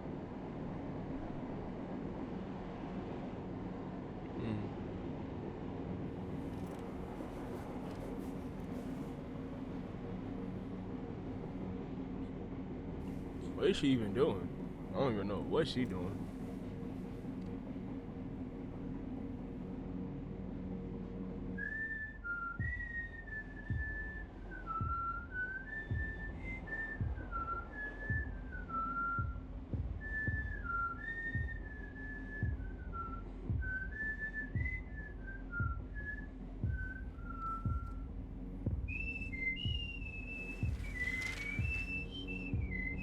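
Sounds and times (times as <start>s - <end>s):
steady low hum: 0.0s - 43.0s
soft low thumps: 25.9s - 26.4s, 27.0s - 27.5s, 28.1s - 30.8s, 31.4s - 43.0s
person whistling: 38.9s - 43.0s.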